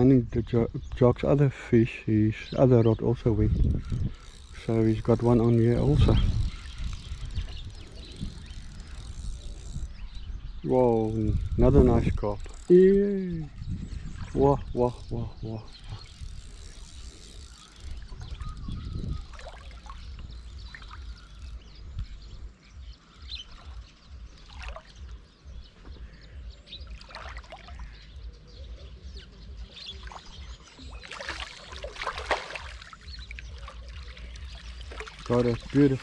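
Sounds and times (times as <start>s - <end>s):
wind rumble on microphone: 0.0s - 36.0s
water splashing: 26.8s - 28.0s, 29.8s - 36.0s.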